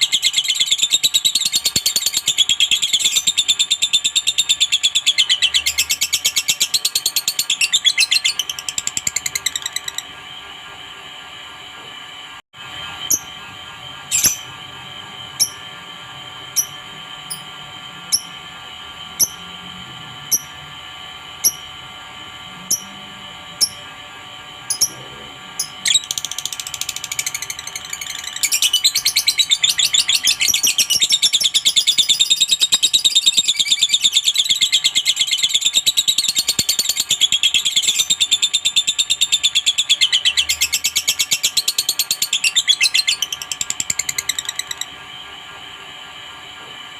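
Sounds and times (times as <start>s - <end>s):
rapid chattering trill: 0.0s - 10.2s, 22.6s - 45.0s.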